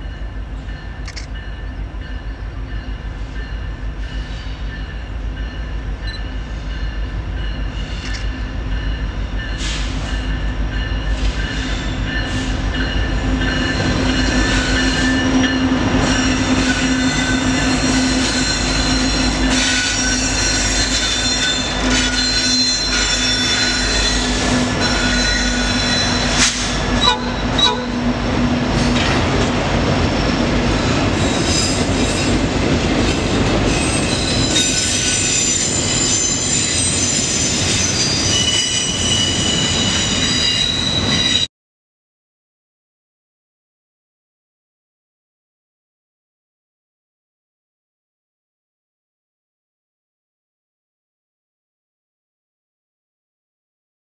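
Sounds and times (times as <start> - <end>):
train wheels rumbling on rail: 0.0 - 41.5
high wheel squeals: 13.5 - 28.0, 33.7 - 41.5.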